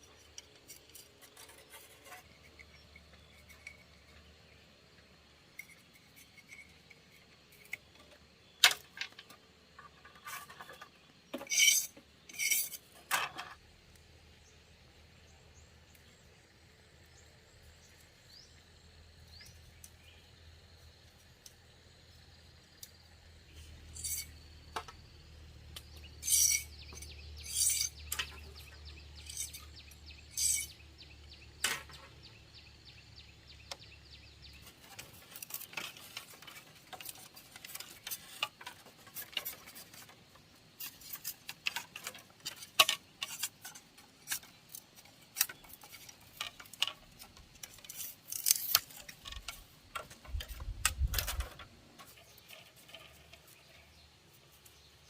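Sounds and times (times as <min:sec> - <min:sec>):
objects clicking and clinking: 0:26.2 - 0:29.7.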